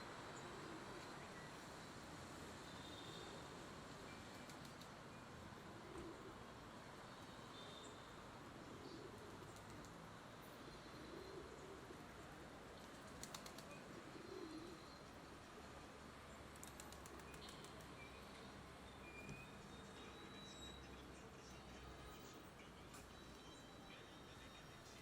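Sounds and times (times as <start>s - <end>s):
faint low cooing bird calls: 0.0s - 2.0s, 5.6s - 6.6s, 7.3s - 15.5s, 16.6s - 20.8s
background hiss: 0.0s - 25.0s.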